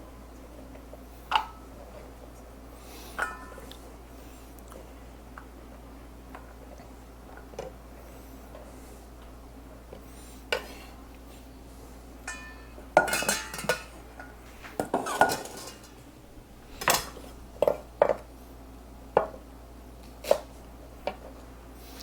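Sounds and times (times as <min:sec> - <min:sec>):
utensils and dishes clinking: 0:03.2 - 0:03.8, 0:12.3 - 0:16.1
short ringing clink: 0:12.3 - 0:13.6.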